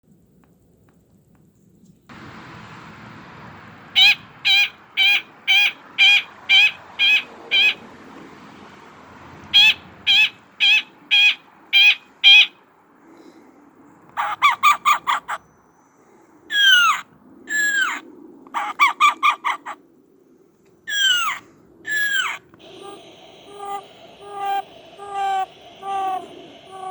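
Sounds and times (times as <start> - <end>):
downward-slurred bird calls: 2.3 - 7.9, 9.4 - 12.6, 14.1 - 15.6, 16.5 - 18.0, 20.9 - 26.9
bird chattering bursts: 3.8 - 7.8, 9.5 - 12.6, 20.9 - 26.9
clear repeated bird notes: 20.9 - 26.9.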